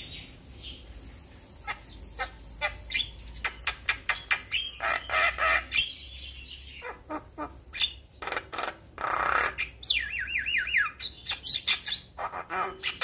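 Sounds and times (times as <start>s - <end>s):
bird harsh rasping calls: 1.6s - 13.0s
bird clicking chirps: 2.9s - 4.8s.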